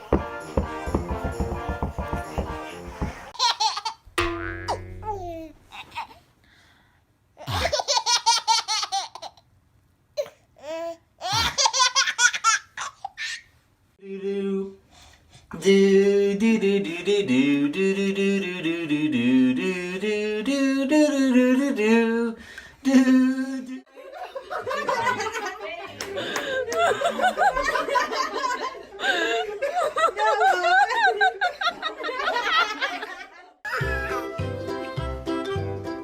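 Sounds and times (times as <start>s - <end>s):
baby laughing: 3.4s - 4.0s, 7.4s - 9.4s, 10.2s - 13.5s
pitched tune: 4.2s - 5.6s.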